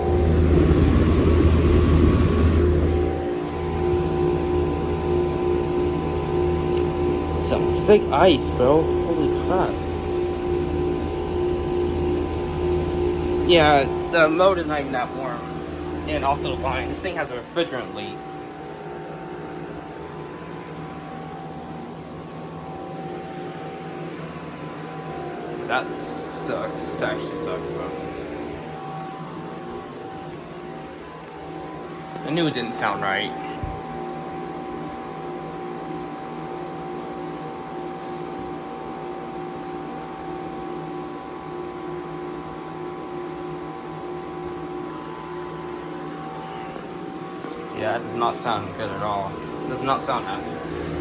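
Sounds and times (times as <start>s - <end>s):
fan noise: 0.0s - 51.0s
heat pump humming: 0.0s - 51.0s
person talking: 7.3s - 10.0s, 13.4s - 18.2s, 25.6s - 28.7s, 32.2s - 33.8s, 47.5s - 51.0s.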